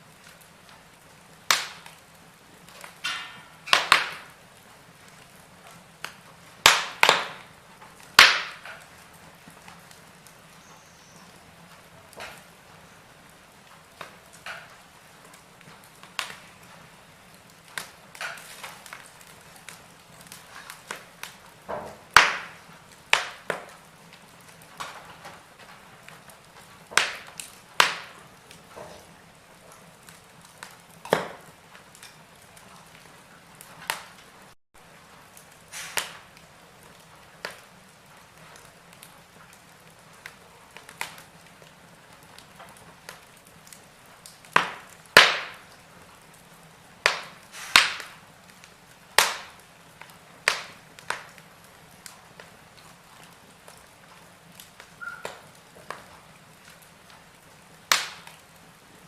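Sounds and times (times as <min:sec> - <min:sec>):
fireplace logs crackling: 0:00.0 - 0:59.0
faint hiss: 0:34.0 - 0:42.6, 0:45.5 - 0:54.0
short hiss: 0:35.7 - 0:36.2, 0:47.5 - 0:47.9.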